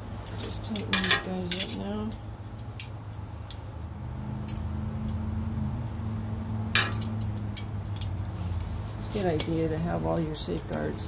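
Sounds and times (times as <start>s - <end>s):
light metal clicks and clinks: 0.2s - 3.6s.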